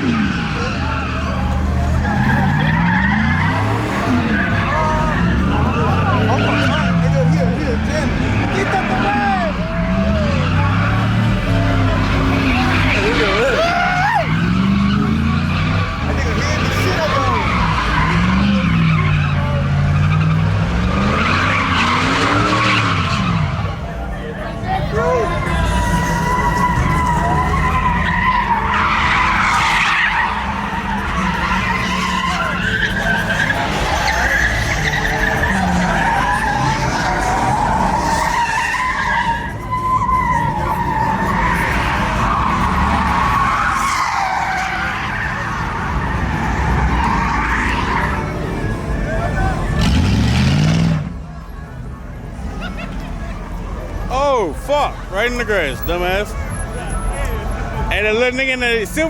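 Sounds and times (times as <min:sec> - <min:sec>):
engine at high revs: 0:00.0 - 0:13.6, 0:14.2 - 0:23.8, 0:44.5 - 0:51.2
tyres squealing: 0:00.0 - 0:50.9
tyre squeal: 0:25.0 - 0:48.8.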